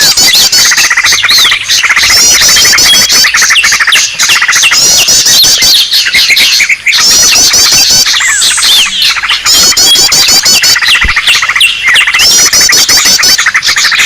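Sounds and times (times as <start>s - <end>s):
many small birds calling: 0.0s - 14.0s.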